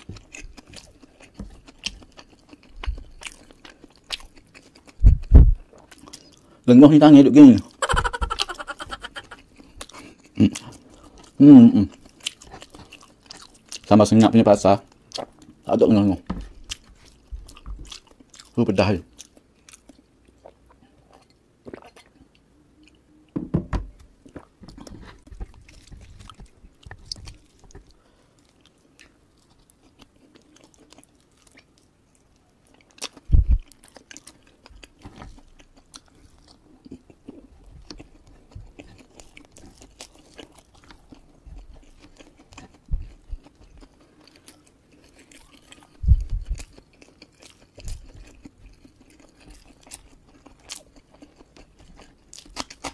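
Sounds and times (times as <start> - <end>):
mouth-closed chewing: 0.0 - 6.5, 24.7 - 52.9
louder knocks: 23.4 - 23.9.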